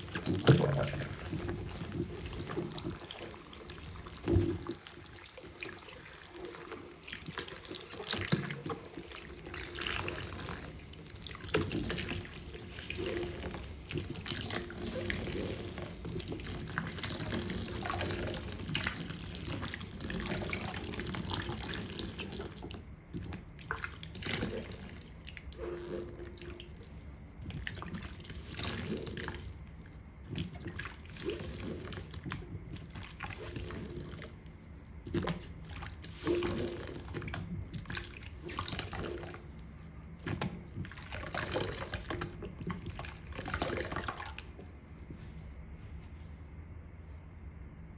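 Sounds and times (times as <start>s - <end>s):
water running into sink: 0.0s - 29.5s
splashing and dripping sponges: 0.0s - 46.3s.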